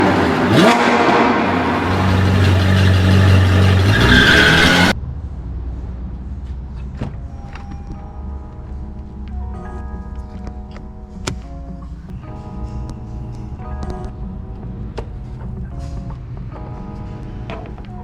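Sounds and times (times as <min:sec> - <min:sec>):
loud car engine revving: 0:00.0 - 0:05.0
soft music with bell-like notes: 0:07.2 - 0:18.0.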